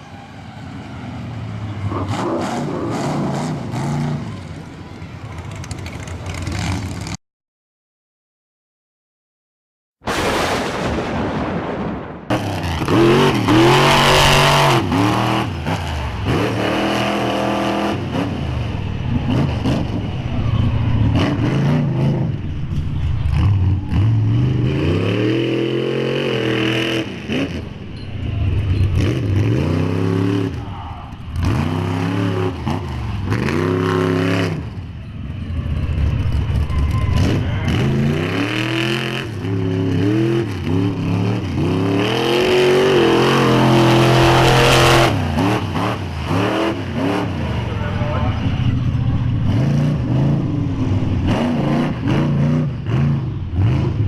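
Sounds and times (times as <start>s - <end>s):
truck engine revving: 0.0s - 7.2s, 10.1s - 54.0s.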